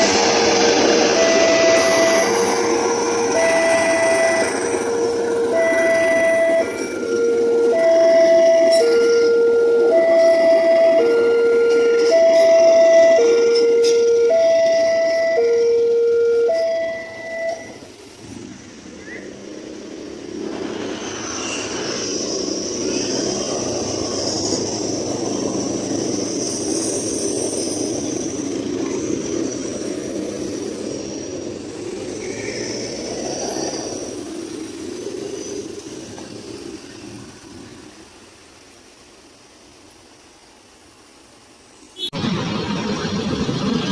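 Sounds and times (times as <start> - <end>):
train wheels rumbling on rail: 0.0 - 43.9
two-tone signal: 0.4 - 17.8.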